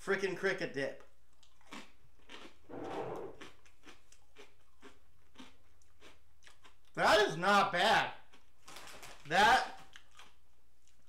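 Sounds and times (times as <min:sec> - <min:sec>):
person chewing crunchy chip: 0:01.3 - 0:06.9, 0:09.8 - 0:11.0.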